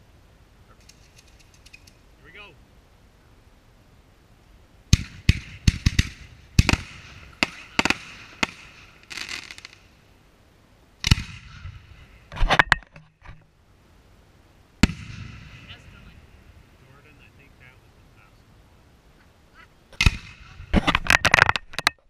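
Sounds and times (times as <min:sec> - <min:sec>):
fireworks bangs: 0:04.9 - 0:10.0, 0:11.0 - 0:12.7, 0:14.8 - 0:18.4, 0:19.9 - 0:21.4.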